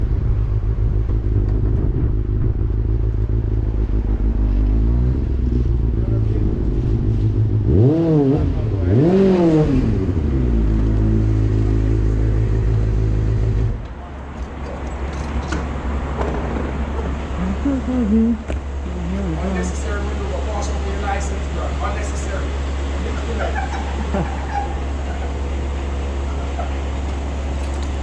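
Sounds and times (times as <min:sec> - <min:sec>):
motorcycle engine revving: 0:00.0 - 0:13.8.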